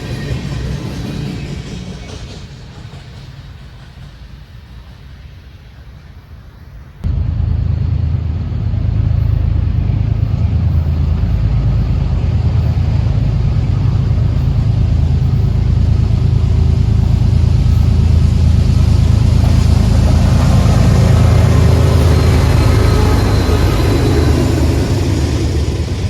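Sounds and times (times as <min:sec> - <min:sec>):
diesel locomotive engine rumble: 0:00.0 - 0:26.0
brighter noisy engine sound: 0:07.0 - 0:26.0.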